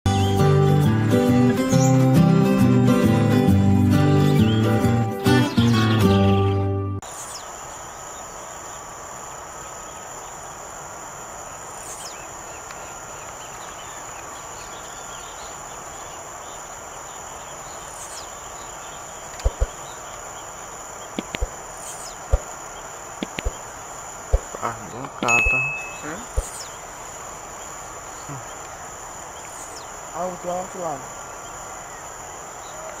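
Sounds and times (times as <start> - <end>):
insect trilling: 7.0 - 33.0
sharp knocks: 24.3 - 24.6
bird singing buzzy note: 25.2 - 26.8.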